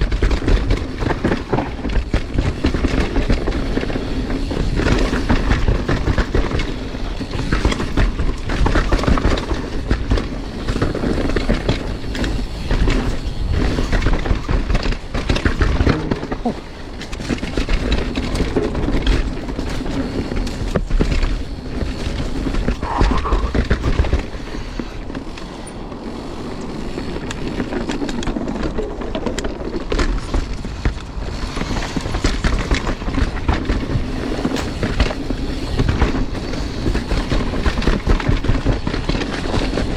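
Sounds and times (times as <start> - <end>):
bike rattling and knocking: 0.0 - 39.9
bike tyres rolling over dirt: 0.0 - 39.9
wind on microphone: 21.8 - 26.0.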